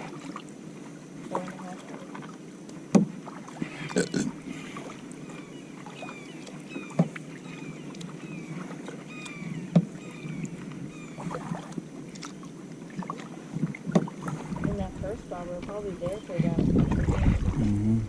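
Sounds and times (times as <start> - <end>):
paddle splashing in water: 0.0 - 17.7
paddle knocking on canoe hull: 2.9 - 3.2, 9.7 - 10.0.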